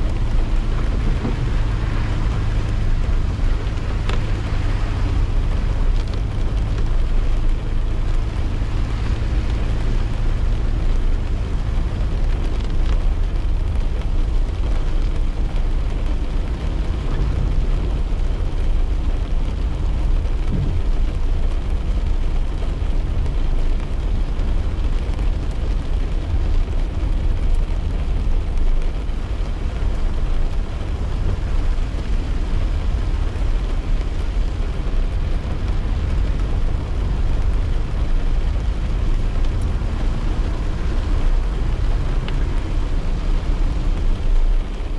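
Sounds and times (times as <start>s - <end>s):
rain on a car: 0.0s - 44.9s
tyres and engine rumble: 0.0s - 44.9s.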